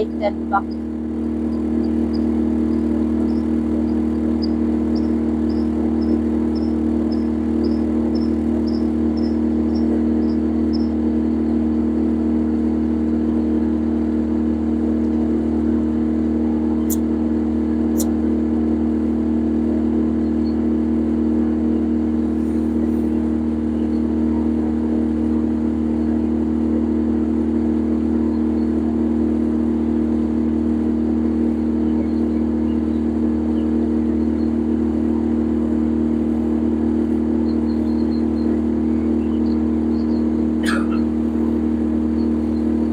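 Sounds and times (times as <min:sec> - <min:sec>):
boat engine droning: 0:00.0 - 0:42.9
short high chirps: 0:40.6 - 0:41.0.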